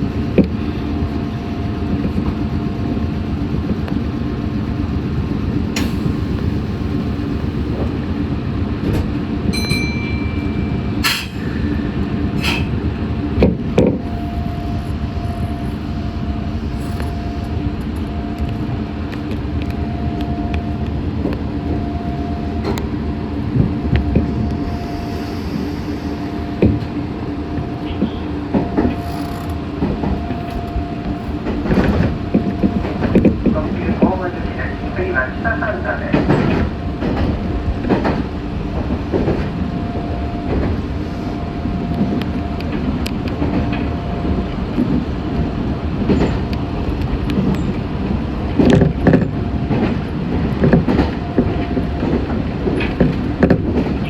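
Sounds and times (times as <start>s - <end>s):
train wheels rumbling on track: 0.0s - 54.0s
brief high tone: 9.5s - 11.1s.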